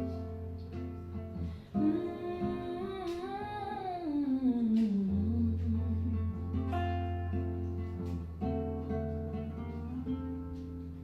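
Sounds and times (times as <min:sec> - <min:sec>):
acoustic guitar: 0:00.0 - 0:11.0
woman singing wordlessly: 0:01.6 - 0:07.1.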